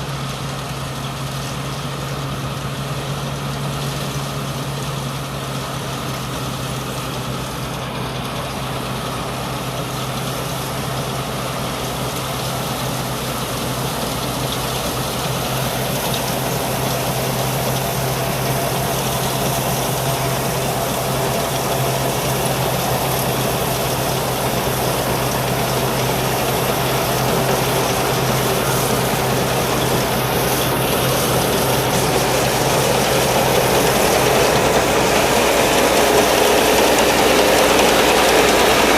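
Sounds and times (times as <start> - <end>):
combine harvester diesel engine: 0.0 - 38.9
machine clatter: 9.8 - 38.9.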